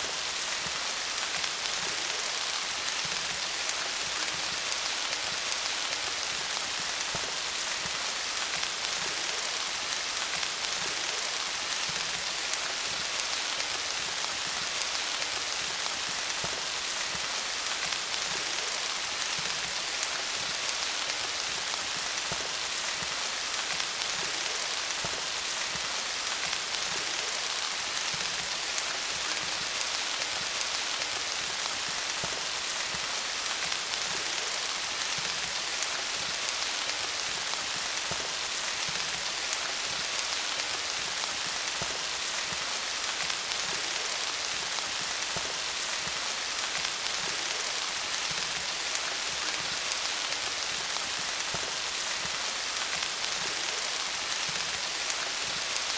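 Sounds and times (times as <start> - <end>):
rain falling on leaves: 0.0 - 55.9.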